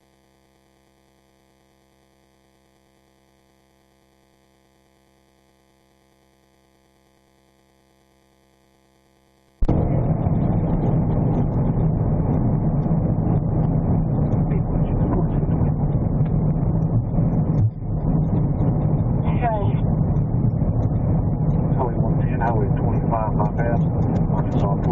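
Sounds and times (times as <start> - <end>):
car driving heard from inside: 9.6 - 24.9.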